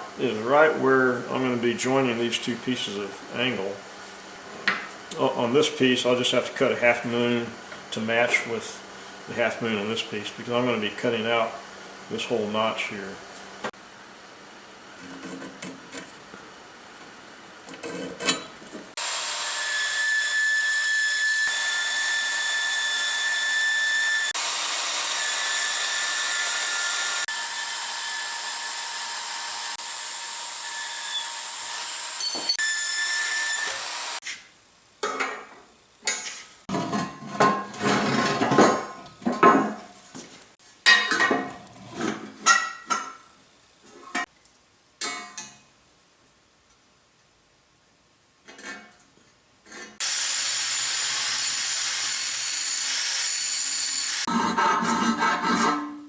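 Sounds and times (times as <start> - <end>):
power tool cutting steel: 19.0 - 34.2, 50.0 - 54.3.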